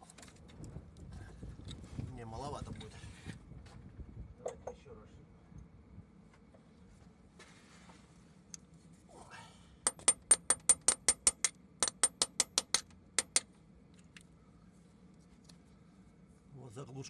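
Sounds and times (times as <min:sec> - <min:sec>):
hammer striking steel tool: 0:09.9 - 0:13.5.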